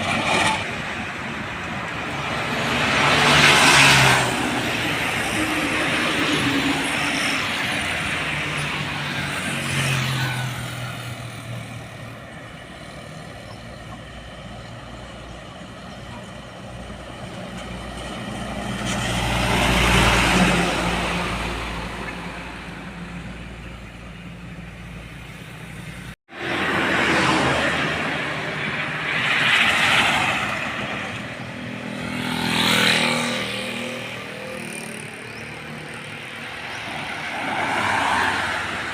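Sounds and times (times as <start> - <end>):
vehicles passing on road: 0.0 - 38.9.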